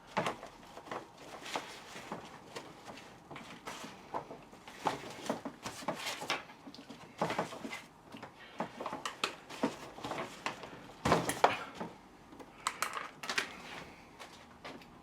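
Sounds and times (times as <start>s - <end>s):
tools clicking on plastic parts: 12.4s - 13.6s.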